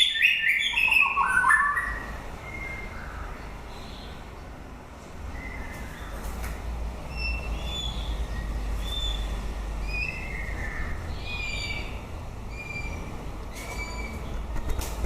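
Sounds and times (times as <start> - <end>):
bird whistling song: 0.0 - 4.1, 7.1 - 14.3.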